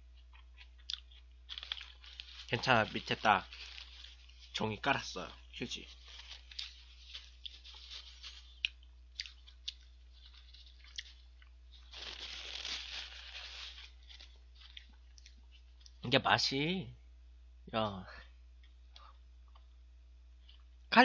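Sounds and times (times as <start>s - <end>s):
person chewing food: 0.0s - 2.5s, 6.1s - 12.2s, 14.0s - 16.0s
rustling noise: 1.5s - 8.6s, 11.7s - 14.9s.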